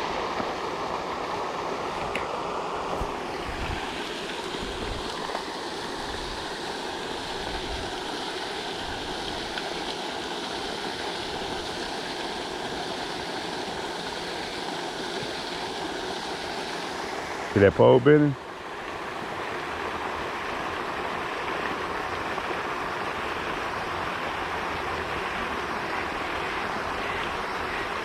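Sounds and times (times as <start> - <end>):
wind rumble on microphone: 3.0 - 3.9, 4.6 - 5.1
fountain splashing onto water: 3.0 - 28.0.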